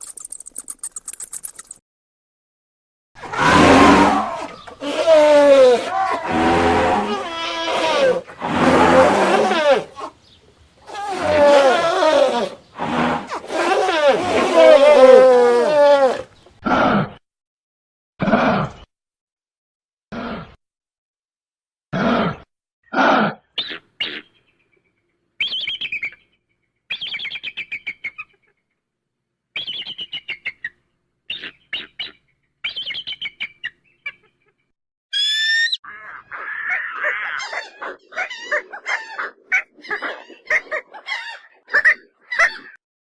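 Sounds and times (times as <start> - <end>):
bird chattering calls: 0.0 - 1.8
rising bird whistle: 29.6 - 30.6, 35.1 - 35.8
bird trilling calls: 35.2 - 36.1.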